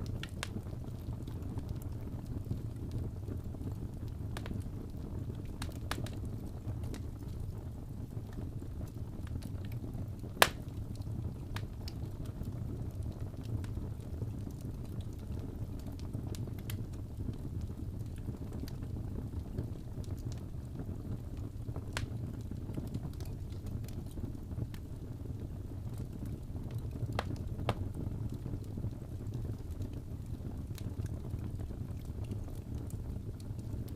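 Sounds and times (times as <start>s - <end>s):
fire crackling: 0.0s - 33.9s
fire flames rumbling: 0.0s - 33.9s
loud fire pop: 10.4s - 10.6s.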